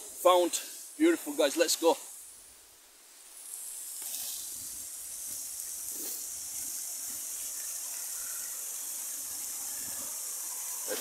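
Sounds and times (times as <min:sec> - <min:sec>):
waterfall rushing: 0:04.4 - 0:11.0.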